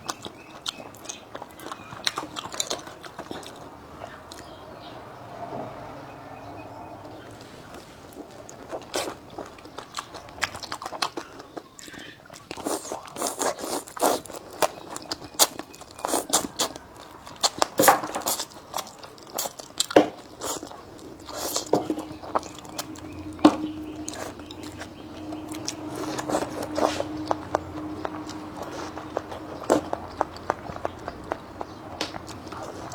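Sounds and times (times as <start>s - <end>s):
person chewing crispy food: 0.0s - 4.9s, 7.2s - 32.9s
steady low hum: 20.7s - 32.9s.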